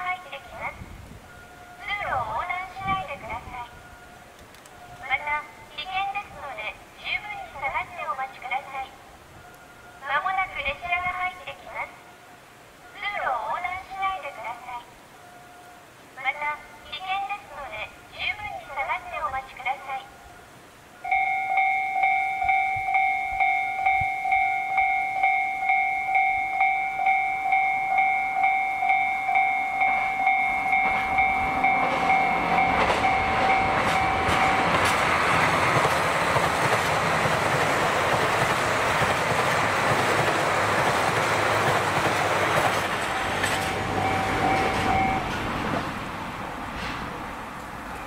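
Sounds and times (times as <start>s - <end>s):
electronic railway warning bell: 1.3s - 3.0s, 21.0s - 35.8s, 42.8s - 45.4s
train passing close by: 20.9s - 48.0s.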